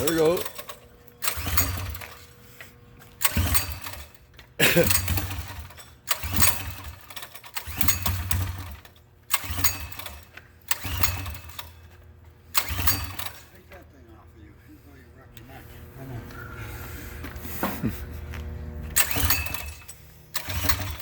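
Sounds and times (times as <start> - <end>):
small engine cranking and sputtering: 0.0 - 13.9, 18.8 - 21.0.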